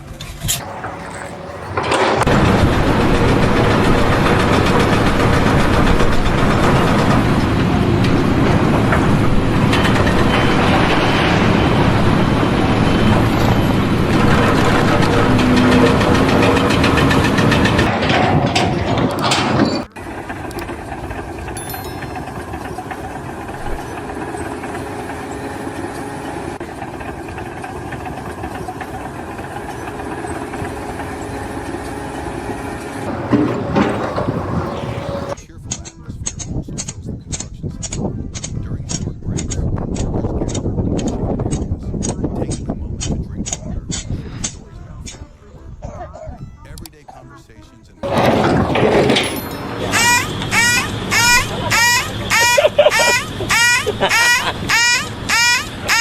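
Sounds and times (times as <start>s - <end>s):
loud engine and machinery noise: 0.0s - 35.4s, 46.8s - 56.0s
steady engine hum: 0.0s - 35.4s, 46.9s - 56.0s.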